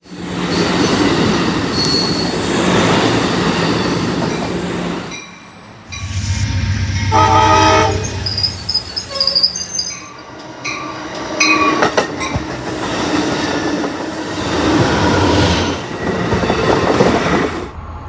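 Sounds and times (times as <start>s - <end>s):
train wheels rumbling on rails: 0.0s - 18.0s
train horn blast: 6.0s - 9.4s.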